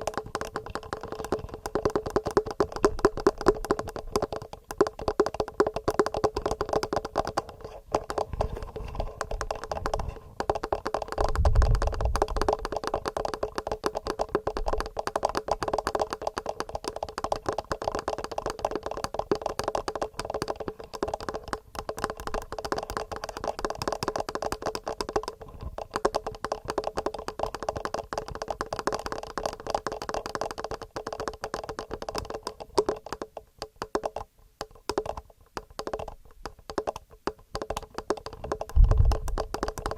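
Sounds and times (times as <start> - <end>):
fingernails tapping on recorder: 0.0 - 39.9
dull low thump: 38.8 - 39.4.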